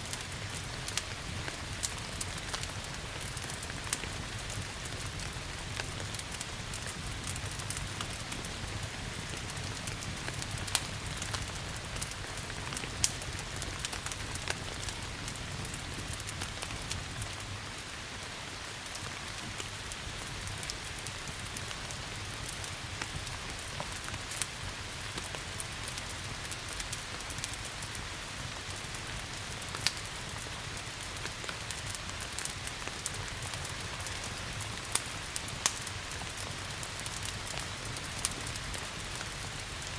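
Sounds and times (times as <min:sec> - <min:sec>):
steady rain hiss: 0:00.0 - 0:39.9
wood fire crackling and popping: 0:00.0 - 0:39.9.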